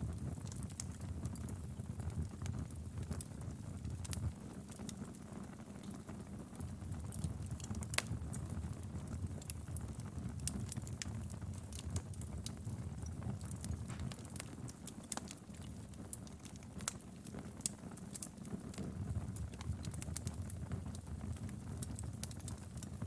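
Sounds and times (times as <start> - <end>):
fire crackling and popping: 0.0 - 23.0
fireplace flames rushing: 5.8 - 23.0.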